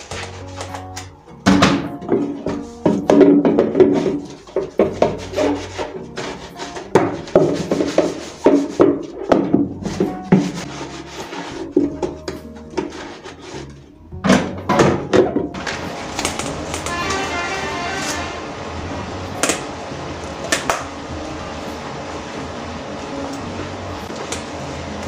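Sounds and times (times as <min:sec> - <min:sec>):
soft background music: 0:00.0 - 0:25.0
containers knocking and clacking: 0:01.4 - 0:10.6.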